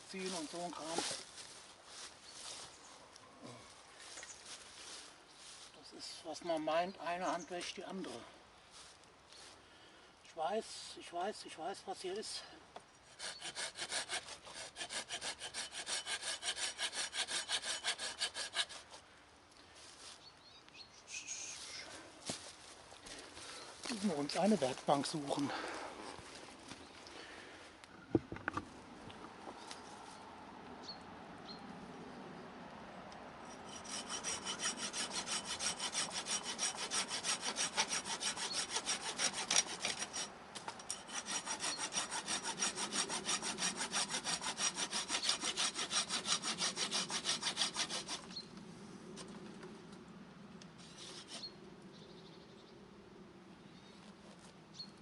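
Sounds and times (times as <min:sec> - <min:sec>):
hand saw cutting wood: 0:13.1 - 0:19.0, 0:33.5 - 0:48.4, 0:50.8 - 0:51.5.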